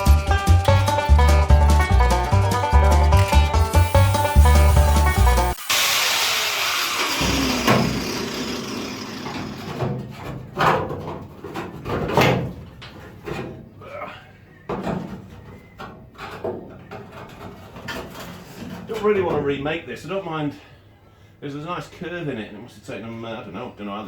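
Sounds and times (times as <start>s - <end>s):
loud hiss with falling whine: 3.7s - 7.2s.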